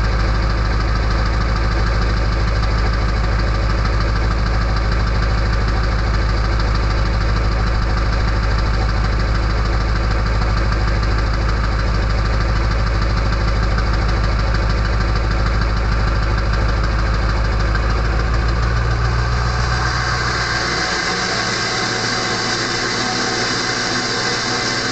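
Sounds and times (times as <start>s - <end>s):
diesel engine idling: 0.0s - 24.9s
loud whistling noise: 19.2s - 24.9s.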